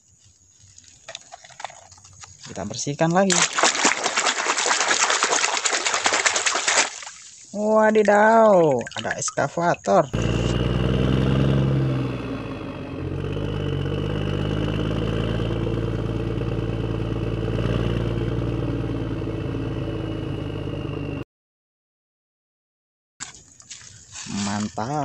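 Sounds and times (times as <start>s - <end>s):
excavator engine running: 9.9s - 21.2s.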